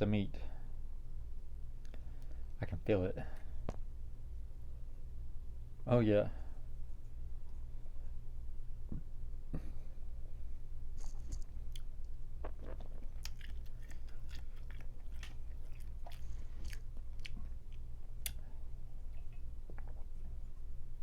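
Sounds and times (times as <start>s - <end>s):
steady low hum: 0.0s - 21.0s
chewing and biting crawfish: 11.0s - 18.4s.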